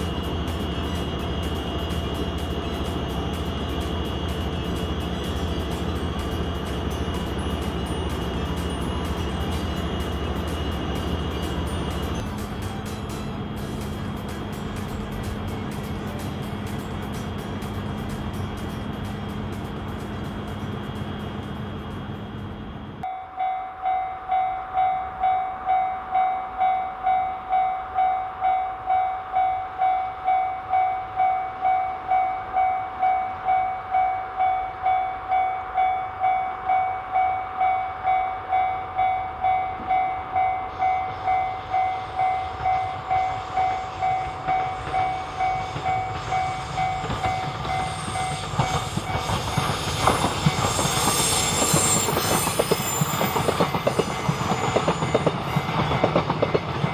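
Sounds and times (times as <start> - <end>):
train wheel clatter: 39.6 - 56.9.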